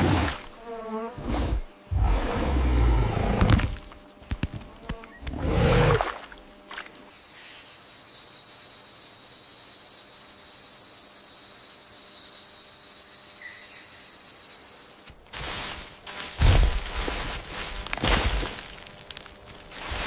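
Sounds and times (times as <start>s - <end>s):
high-pitched insect drone: 7.1s - 15.1s.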